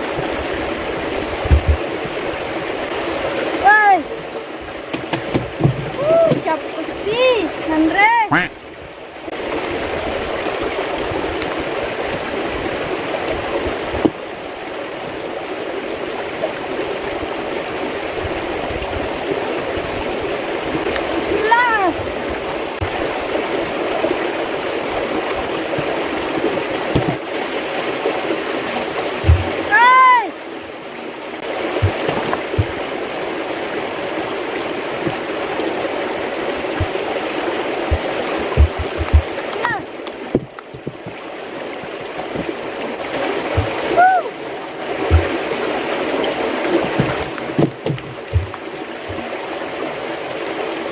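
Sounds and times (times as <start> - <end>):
running water: 0.0 - 50.9
soft low thumps: 1.4 - 2.0, 29.2 - 29.6, 31.8 - 32.9, 36.8 - 37.2, 37.8 - 39.6, 40.2 - 41.2, 43.5 - 43.9, 45.0 - 45.4, 47.0 - 48.6.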